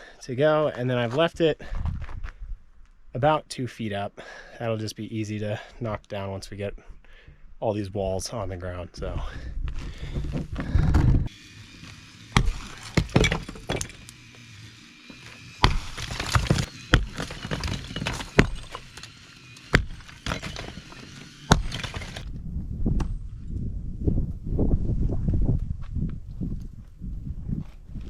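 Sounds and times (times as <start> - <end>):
rubble crumbling and falling: 9.7 - 14.3, 15.5 - 22.3
sledgehammer striking block wall: 12.3 - 14.0, 15.6 - 18.8, 19.7 - 20.8, 21.5 - 22.3.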